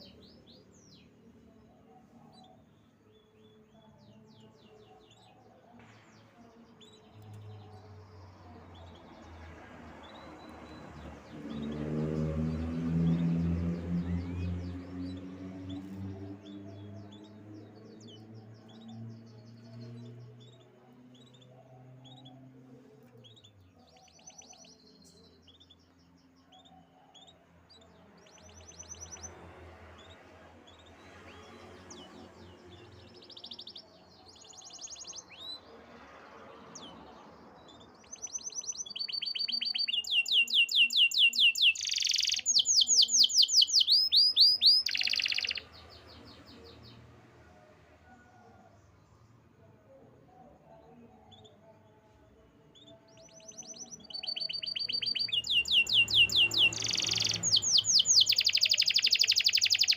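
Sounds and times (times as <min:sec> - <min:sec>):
canary chirping and trilling: 0:07.0 - 0:27.4, 0:28.2 - 0:35.7, 0:36.8 - 0:47.0, 0:52.7 - 0:59.9.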